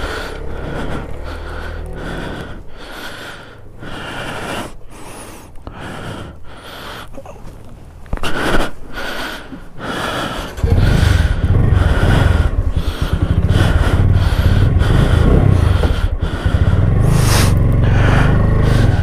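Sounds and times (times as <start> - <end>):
motorcycle engine starting and idling: 0.0 - 4.0, 9.9 - 19.0
breathy puffs: 0.0 - 19.0.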